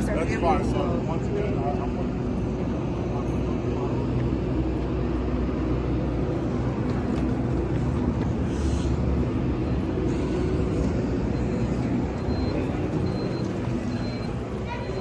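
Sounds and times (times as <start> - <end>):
moving vehicle rumble: 0.0 - 15.0.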